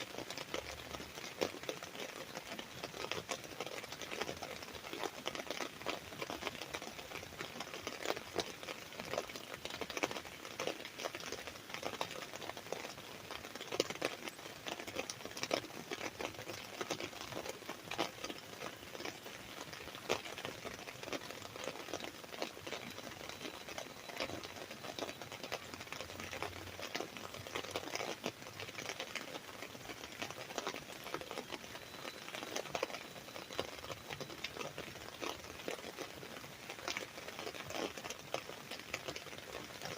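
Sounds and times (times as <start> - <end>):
rain pattering on an umbrella: 0.0 - 39.9.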